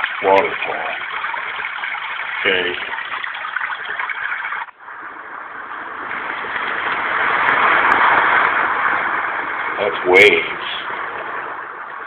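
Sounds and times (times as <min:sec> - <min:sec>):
ocean waves surf rushing: 0:05.0 - 0:11.8
recorded waterfall sound: 0:06.0 - 0:12.0.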